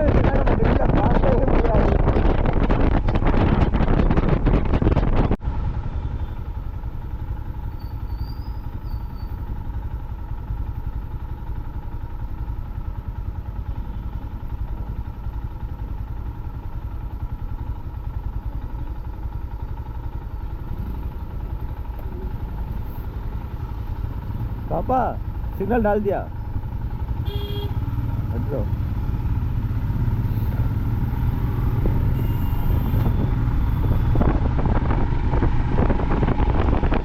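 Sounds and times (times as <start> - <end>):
wind rush on microphone: 0.0 - 5.4, 32.9 - 37.0
motorcycle engine hum: 0.0 - 37.0.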